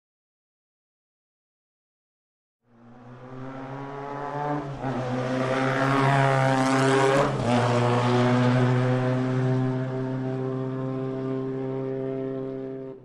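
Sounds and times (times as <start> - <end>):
motorcycle engine passing: 2.8 - 13.0.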